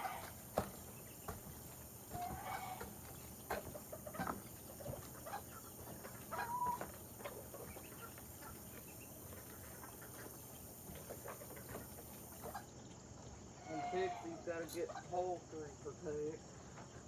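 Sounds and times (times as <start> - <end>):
chicken call: 0.0 - 0.4
chickens clucking: 0.0 - 15.4.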